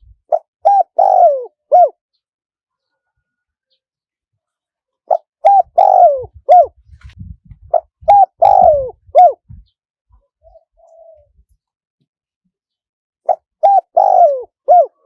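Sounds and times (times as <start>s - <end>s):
dove cooing: 0.3s - 2.0s, 5.1s - 6.8s, 7.7s - 9.7s, 10.4s - 11.4s, 13.3s - 15.0s.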